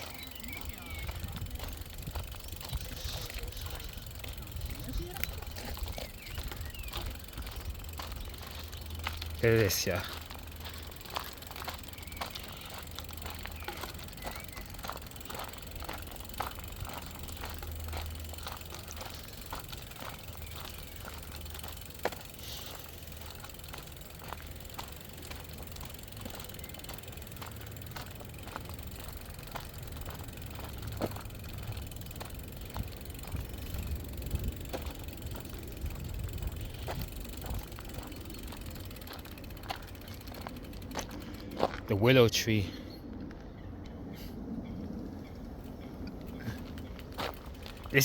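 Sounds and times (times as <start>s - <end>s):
wind rumble on microphone: 0.0s - 8.4s, 30.8s - 39.0s
footsteps on outdoor path: 0.0s - 44.1s, 44.7s - 48.0s.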